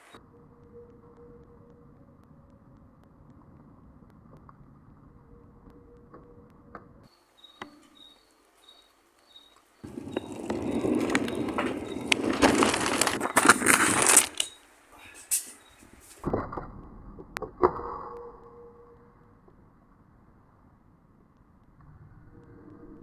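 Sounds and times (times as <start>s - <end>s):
faint high chirps: 0.0s - 3.0s, 4.9s - 13.6s.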